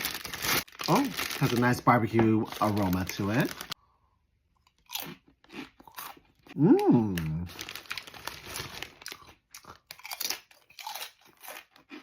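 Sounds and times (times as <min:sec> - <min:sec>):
crunching chewing of crisp snack: 0:04.5 - 0:12.0
person humming mmm: 0:06.5 - 0:07.6.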